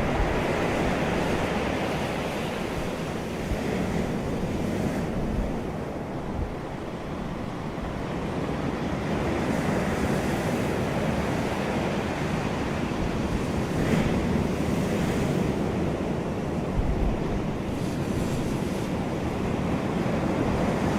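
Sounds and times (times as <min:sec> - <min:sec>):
ocean surf breaking: 0:00.0 - 0:20.9
wind buffeting microphone: 0:00.0 - 0:20.9.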